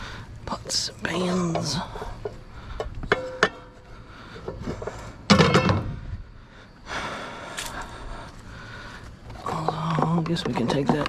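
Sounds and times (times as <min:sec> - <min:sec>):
metal pots and pans clanking: 0:03.0 - 0:03.8, 0:05.3 - 0:05.8.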